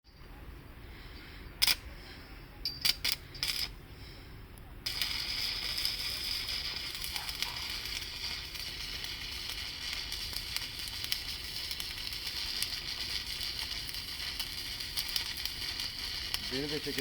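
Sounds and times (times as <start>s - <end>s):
welding sizzling crackle with pops: 1.6s - 1.8s, 2.8s - 3.8s, 4.8s - 17.0s.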